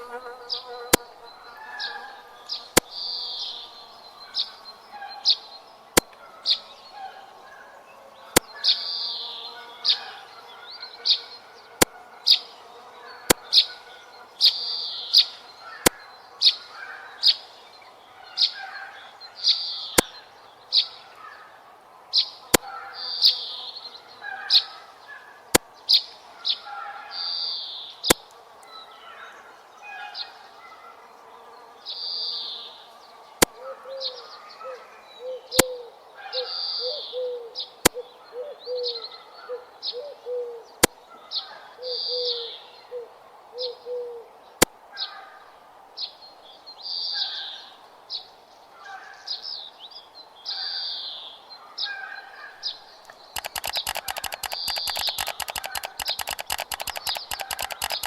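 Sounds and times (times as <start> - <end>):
sharp clicks: 53.0 - 58.0
high bird chirping calls: 53.1 - 58.0.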